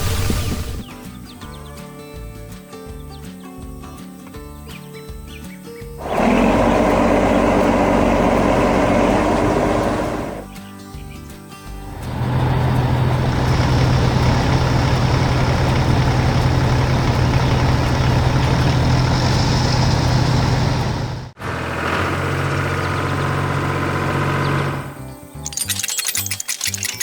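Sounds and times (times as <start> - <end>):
heavy vehicle engine running: 6.0 - 10.5, 11.9 - 24.9.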